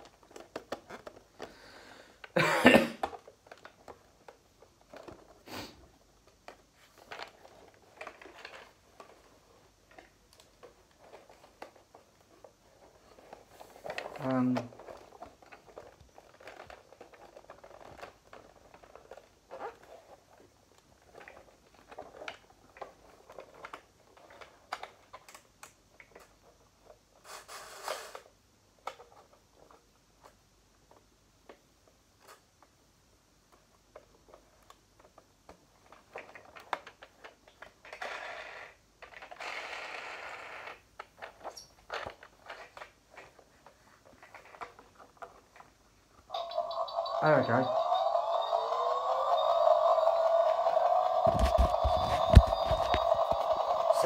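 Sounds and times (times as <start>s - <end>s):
plastic toy clicks and scrapes: 7.0s - 20.4s, 21.0s - 30.4s, 35.8s - 45.7s, 46.3s - 54.0s
packaging rustling: 51.0s - 54.0s.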